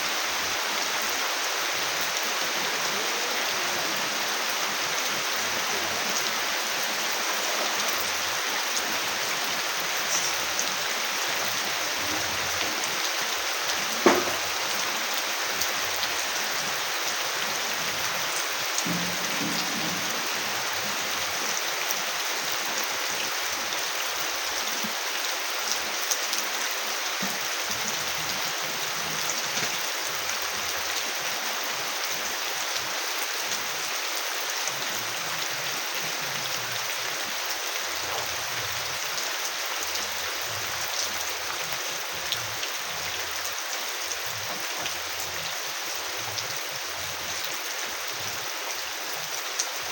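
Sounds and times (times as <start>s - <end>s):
heavy rain falling: 0.0s - 49.9s
sharp knock: 14.0s - 14.4s.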